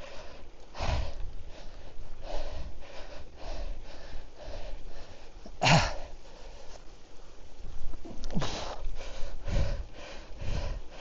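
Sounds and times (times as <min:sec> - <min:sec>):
person breathing hard: 0:00.0 - 0:06.8, 0:08.3 - 0:11.0.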